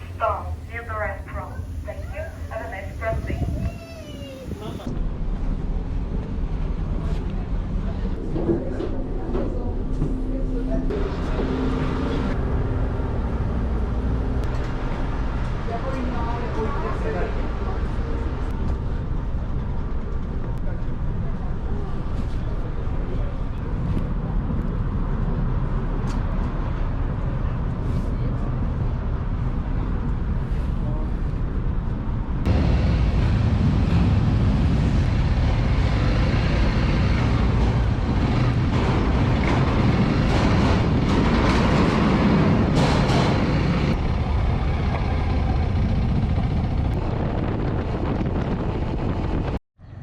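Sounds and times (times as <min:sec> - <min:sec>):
low engine rumble: 0:00.0 - 0:50.0
rushing air: 0:32.5 - 0:49.6.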